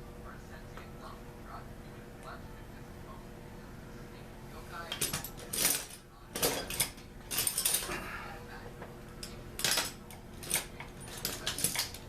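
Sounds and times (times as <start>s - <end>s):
metal tools clinking: 4.9s - 8.0s, 9.2s - 12.0s.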